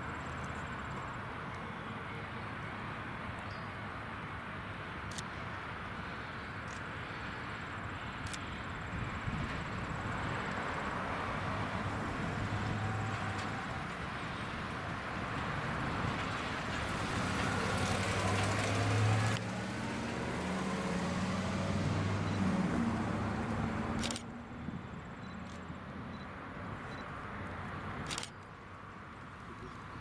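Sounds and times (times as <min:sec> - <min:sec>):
diesel locomotive engine drone: 0:00.0 - 0:30.0
train rumbling: 0:09.3 - 0:24.2.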